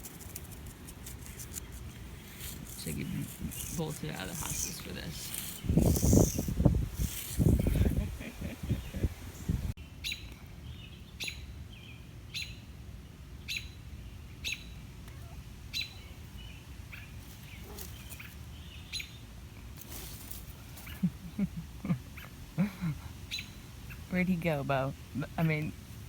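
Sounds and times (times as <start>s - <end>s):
bird chirping: 7.4s - 12.7s, 13.4s - 19.3s, 23.3s - 24.3s.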